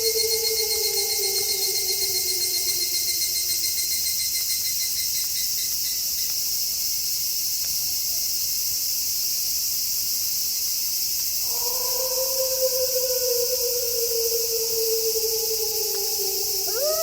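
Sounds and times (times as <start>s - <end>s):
wolf howl: 0.0s - 4.0s, 11.4s - 17.0s
crickets chirping: 0.0s - 17.0s.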